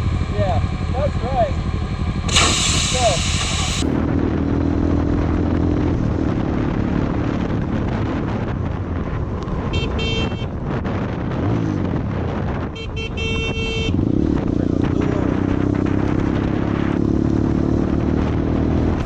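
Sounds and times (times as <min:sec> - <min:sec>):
vehicle engine running: 0:00.0 - 0:08.4
road and wind noise: 0:00.0 - 0:19.0
vehicle horn honking: 0:09.7 - 0:10.5, 0:12.8 - 0:14.0.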